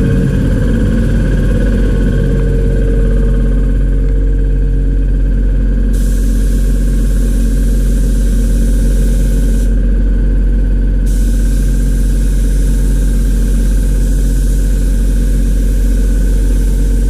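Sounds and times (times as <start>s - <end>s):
pressure washer hum: 5.9s - 9.8s, 11.1s - 17.0s.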